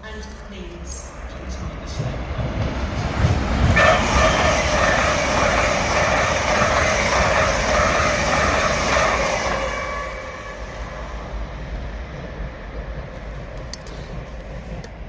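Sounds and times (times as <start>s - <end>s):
train running past: 0.0s - 15.0s.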